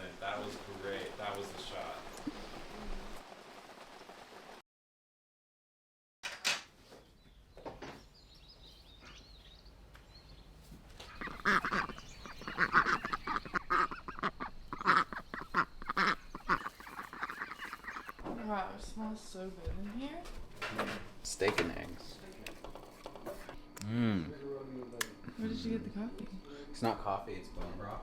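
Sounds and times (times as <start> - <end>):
ducks quacking: 11.0 - 18.2.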